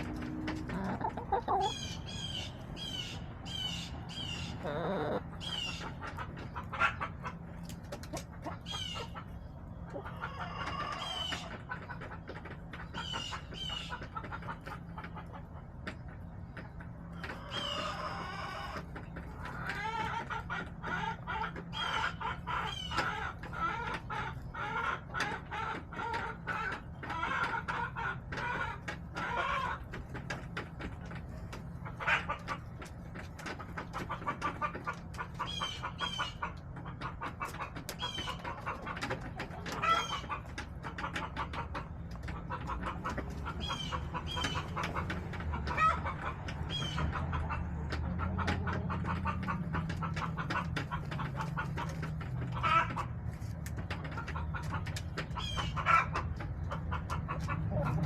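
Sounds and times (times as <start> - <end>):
high drawn-out hen calls: 0.0 - 12.2, 17.1 - 29.9, 33.9 - 53.2, 54.0 - 58.0
hens clucking: 0.0 - 58.0.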